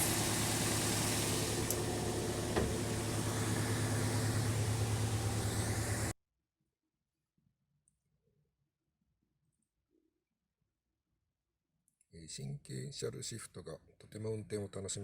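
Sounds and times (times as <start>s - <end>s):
car engine idling: 0.0s - 6.1s.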